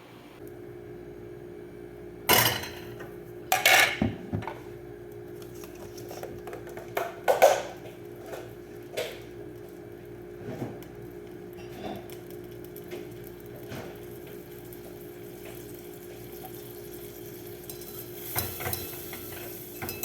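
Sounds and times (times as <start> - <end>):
utensils clattering against pots: 2.3 - 4.5, 11.6 - 12.2, 17.6 - 20.0.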